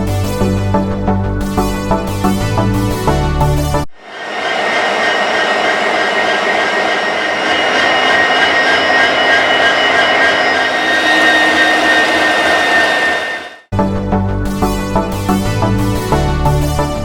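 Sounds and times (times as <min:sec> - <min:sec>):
high steady whine: 0:03.9 - 0:13.7
train running: 0:04.0 - 0:13.7.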